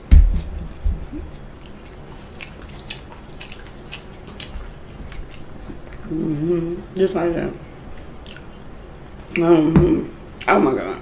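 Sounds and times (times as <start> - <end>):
low thump: 0.0 - 1.2
person chewing and eating: 0.4 - 6.8, 7.7 - 10.5.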